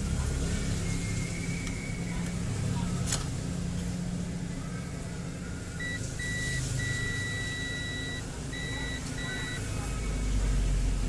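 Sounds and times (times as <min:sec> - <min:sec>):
multimeter continuity beeps: 0:05.8 - 0:09.7.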